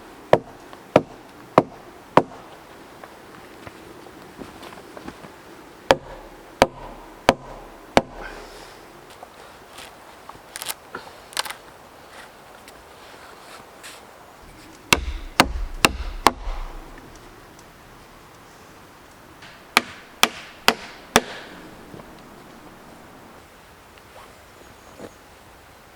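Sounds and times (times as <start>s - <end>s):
hatchet chopping wood: 0.3s - 2.5s, 5.9s - 8.4s, 14.8s - 17.3s, 19.4s - 22.2s.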